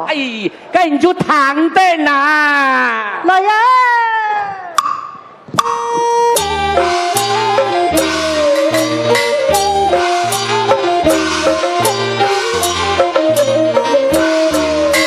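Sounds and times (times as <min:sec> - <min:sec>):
low beat: 0:04.8 - 0:15.0
steady percussion: 0:04.8 - 0:15.0
instrumental stepping melody: 0:05.6 - 0:15.0.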